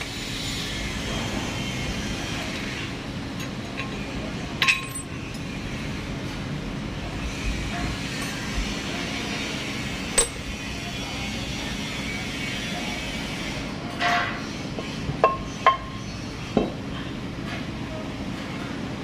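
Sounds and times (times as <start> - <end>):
steady background hum: 0.0 - 19.0
metal tools clinking: 4.6 - 5.5.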